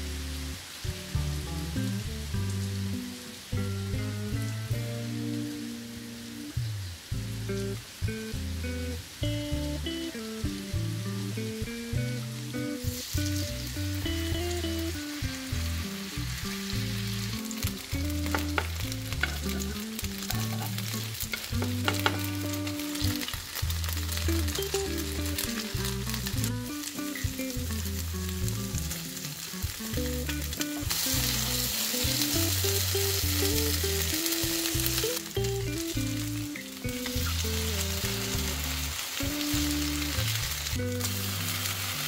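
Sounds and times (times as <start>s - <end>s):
potato pancakes sizzling in oil: 0.0s - 42.0s
spoon tapping and scraping pan: 18.2s - 22.3s.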